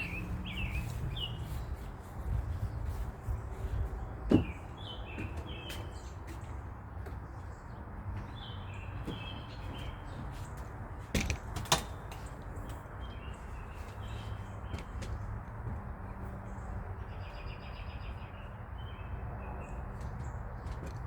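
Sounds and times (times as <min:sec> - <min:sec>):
small birds chirping: 0:00.0 - 0:11.5, 0:12.1 - 0:15.4.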